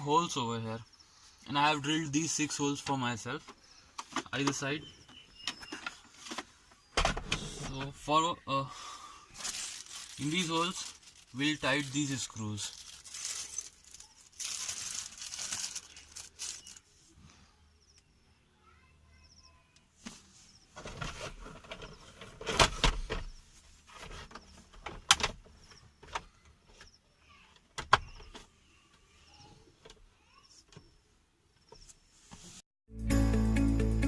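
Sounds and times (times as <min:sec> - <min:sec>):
plastic handling rustling: 0:09.3 - 0:16.9.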